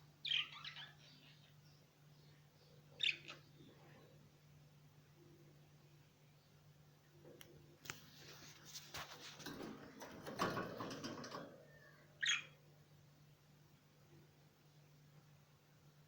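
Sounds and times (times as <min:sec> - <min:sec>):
small birds rustling: 0:07.5 - 0:12.4.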